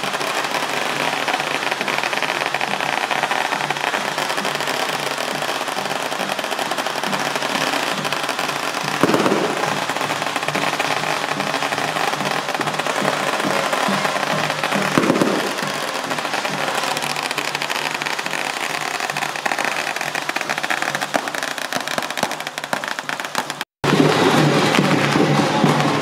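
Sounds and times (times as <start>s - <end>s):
firecrackers crackling: 0.0s - 26.0s.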